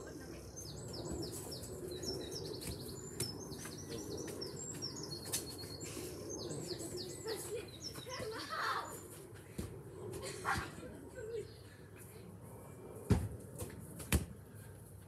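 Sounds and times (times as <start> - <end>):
football being kicked: 13.1 - 14.4.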